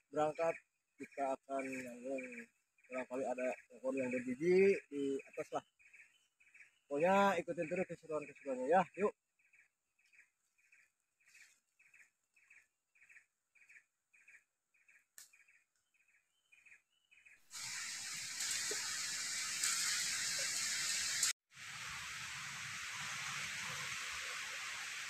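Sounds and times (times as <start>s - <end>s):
forest noise hiss: 17.5s - 25.0s.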